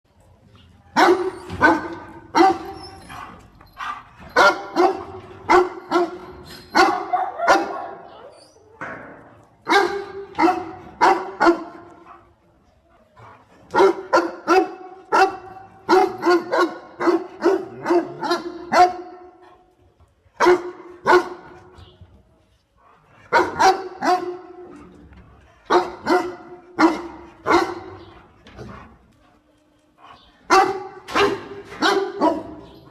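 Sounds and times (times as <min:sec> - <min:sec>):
dog barking: 0:01.0 - 0:06.2, 0:06.8 - 0:08.1, 0:09.7 - 0:12.2, 0:13.7 - 0:19.2, 0:20.4 - 0:21.5, 0:23.3 - 0:24.6, 0:25.7 - 0:28.1, 0:30.5 - 0:32.7.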